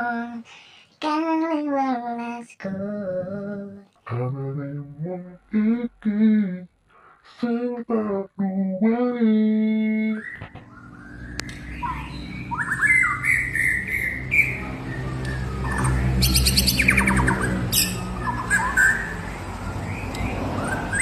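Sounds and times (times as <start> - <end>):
cage bird chirping: 9.9 - 21.0
high bird trill: 10.1 - 21.0.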